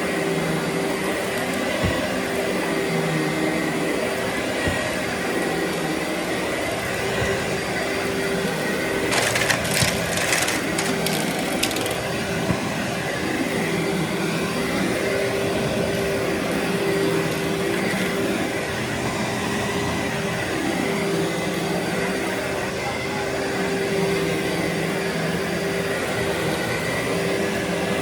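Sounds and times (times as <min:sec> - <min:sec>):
vacuum cleaner running: 0:00.0 - 0:28.0
debris crackling up vacuum: 0:08.4 - 0:13.2.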